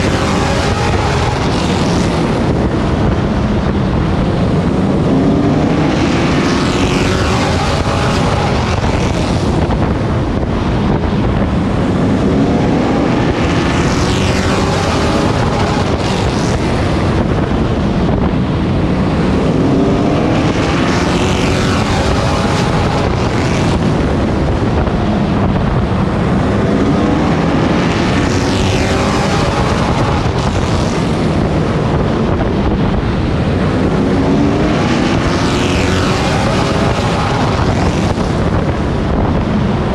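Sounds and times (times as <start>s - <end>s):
wind over microphone: 0.0s - 39.9s.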